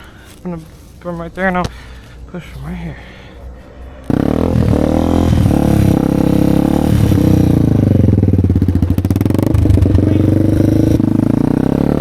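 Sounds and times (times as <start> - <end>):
motorcycle engine revving: 3.6 - 12.0.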